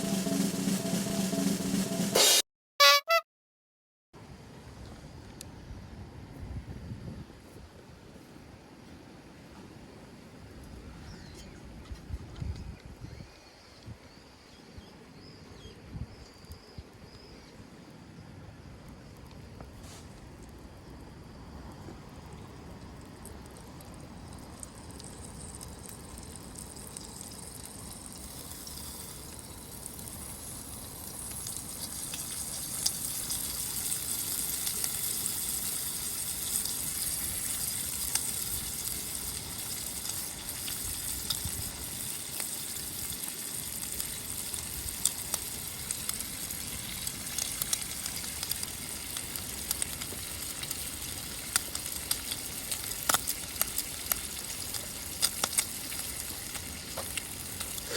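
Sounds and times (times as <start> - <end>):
bacon sizzling: 24.7 - 57.9.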